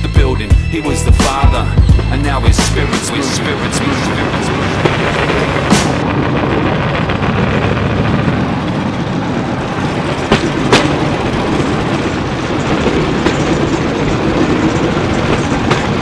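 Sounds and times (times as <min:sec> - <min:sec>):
rail car rattling rumble: 0:00.0 - 0:16.0
wheels clacking over rail joints: 0:02.2 - 0:16.0.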